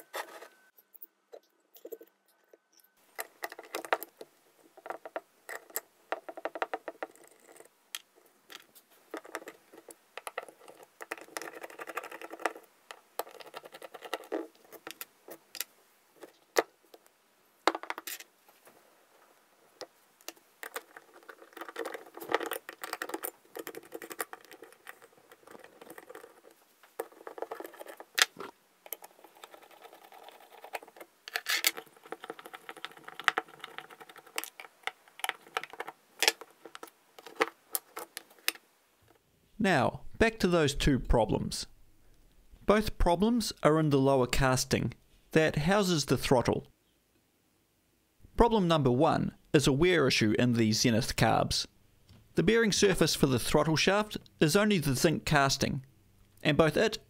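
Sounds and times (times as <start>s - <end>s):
metal rubbing and scraping: 0.0s - 0.7s.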